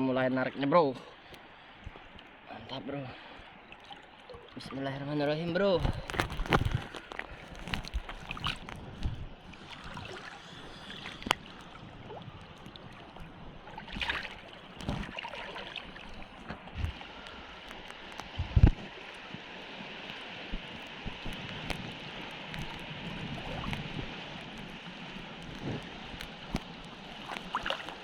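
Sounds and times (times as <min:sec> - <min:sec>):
seawater sloshing and splashing: 0:01.2 - 0:28.0
wind on microphone: 0:05.7 - 0:28.0.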